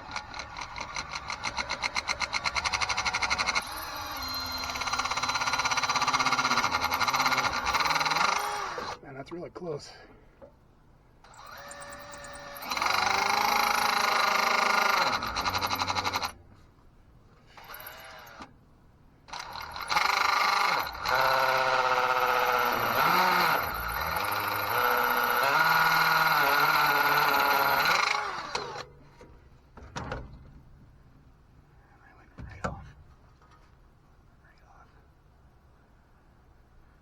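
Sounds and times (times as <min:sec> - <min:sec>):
electric drill drilling bolt: 0:00.0 - 0:09.0, 0:11.3 - 0:16.4, 0:17.6 - 0:18.5, 0:19.3 - 0:28.9.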